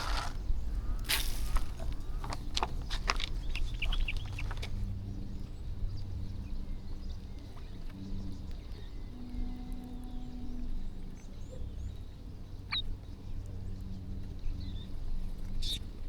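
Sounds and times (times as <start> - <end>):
sharp taps of birds feeding: 0.0 - 4.9.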